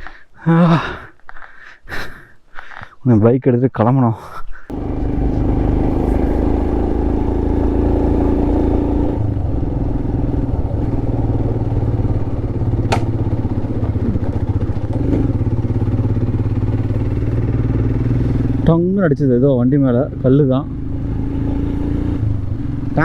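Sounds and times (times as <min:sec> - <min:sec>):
motorcycle engine running: 0:04.7 - 0:23.0
stone striking bike: 0:12.8 - 0:13.2.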